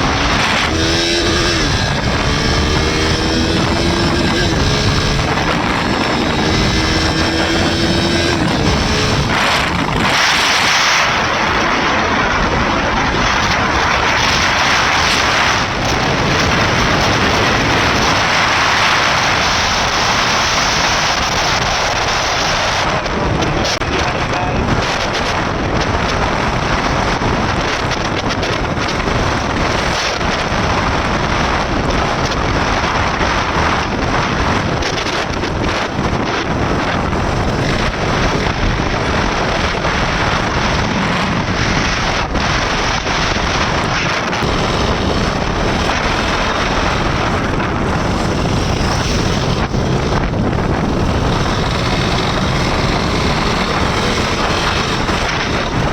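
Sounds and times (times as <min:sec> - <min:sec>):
motorcycle engine: 0:00.0 - 0:55.9
road noise: 0:00.0 - 0:55.9
wind rushing over microphone: 0:00.0 - 0:55.9.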